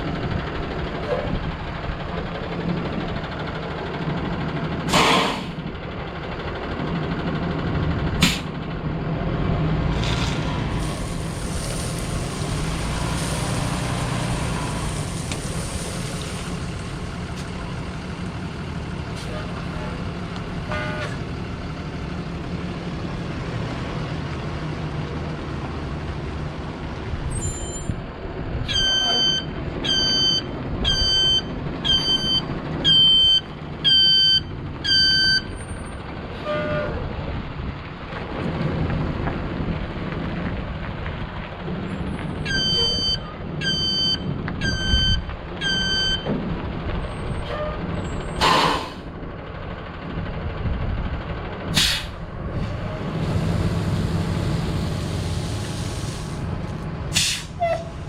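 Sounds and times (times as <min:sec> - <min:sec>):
truck engine running: 0:00.0 - 0:58.0
air brake hiss: 0:04.9 - 0:05.6, 0:48.4 - 0:49.1, 0:51.8 - 0:52.2, 0:55.0 - 0:56.4, 0:57.1 - 0:58.0
backup alarm beeping: 0:28.7 - 0:35.5, 0:42.5 - 0:46.3.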